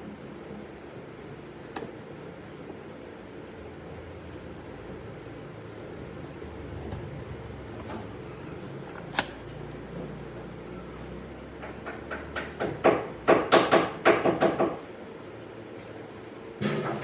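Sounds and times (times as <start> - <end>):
rapid knocks on wood: 11.6 - 14.8.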